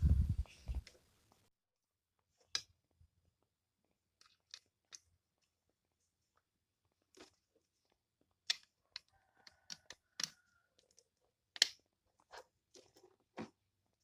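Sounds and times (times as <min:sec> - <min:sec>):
small hard objects clicking: 0:08.3 - 0:11.8.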